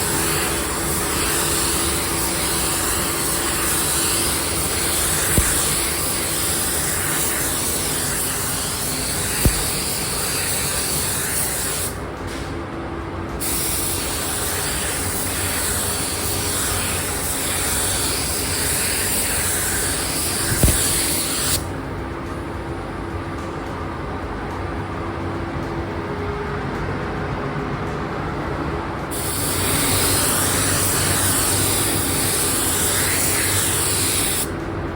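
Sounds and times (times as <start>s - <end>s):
spray gun hissing: 0.0s - 12.0s, 13.4s - 21.7s, 29.1s - 34.5s.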